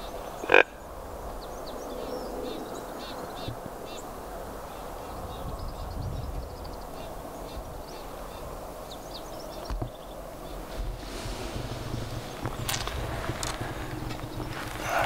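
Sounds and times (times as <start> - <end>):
small birds chirping: 0.0 - 15.0
low outdoor rumble: 10.2 - 15.0.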